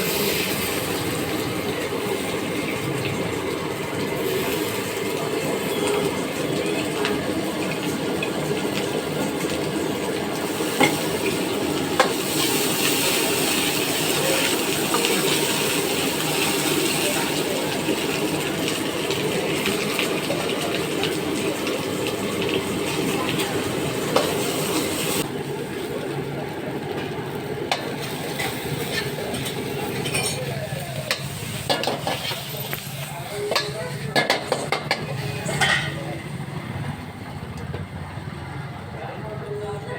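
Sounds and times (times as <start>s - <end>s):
food sizzling in a pan: 0.0s - 36.4s.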